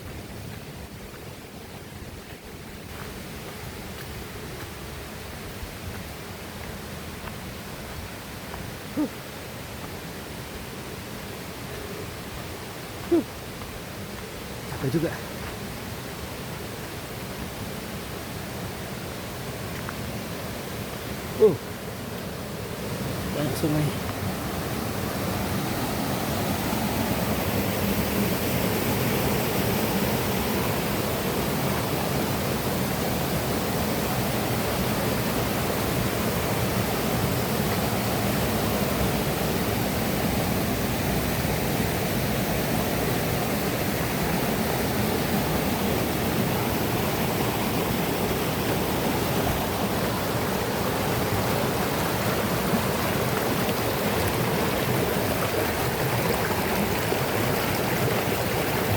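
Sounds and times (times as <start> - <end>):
river water rushing: 0.0 - 58.9.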